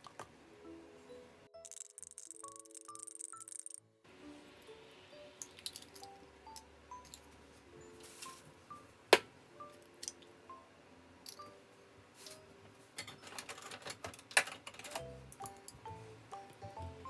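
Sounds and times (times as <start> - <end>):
light background music: 0.0 - 17.0.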